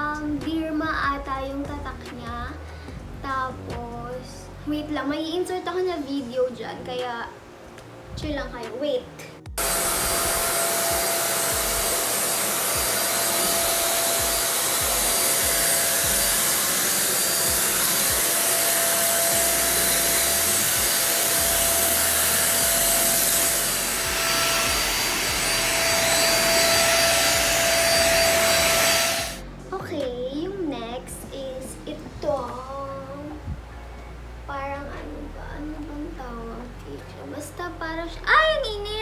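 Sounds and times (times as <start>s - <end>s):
vacuum cleaner running: 9.5s - 29.4s.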